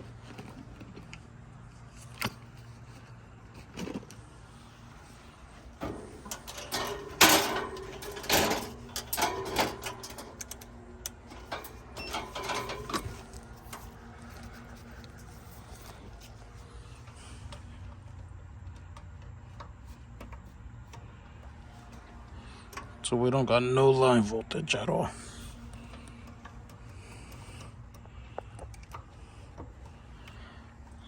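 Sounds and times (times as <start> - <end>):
steady low hum: 0.0 - 31.0
clattering knocks and rattles: 5.1 - 16.4.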